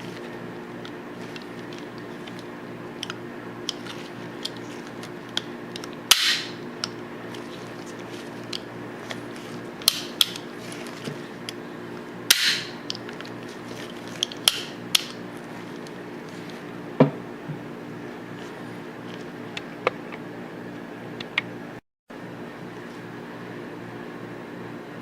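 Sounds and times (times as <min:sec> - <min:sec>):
steady low hum: 0:00.0 - 0:25.0
pistol parts clicking: 0:03.0 - 0:07.5, 0:09.8 - 0:10.4, 0:14.2 - 0:15.2.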